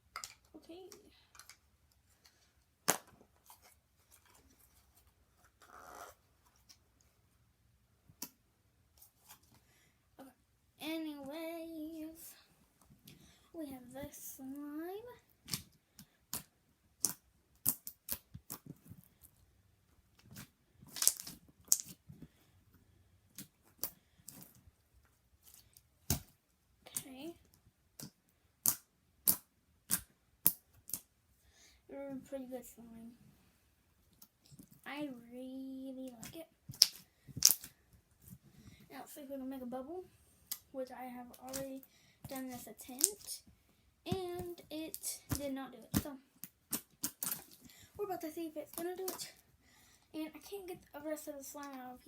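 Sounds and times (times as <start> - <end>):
slime squelching and popping: 20.3 - 22.0, 44.1 - 47.6.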